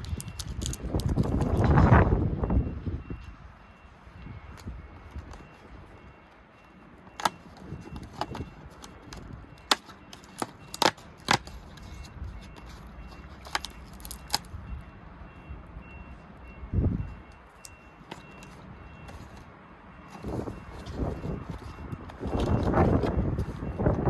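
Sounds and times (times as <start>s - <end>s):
plastic clicks and handling: 0.0s - 1.8s, 7.2s - 14.5s, 17.3s - 19.5s, 20.1s - 24.0s.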